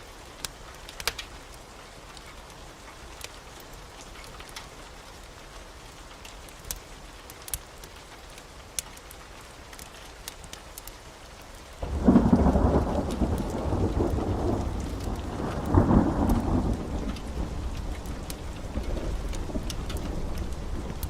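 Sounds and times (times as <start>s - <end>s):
heavy rain: 0.0s - 21.0s
loud thunder rumble: 11.8s - 21.0s.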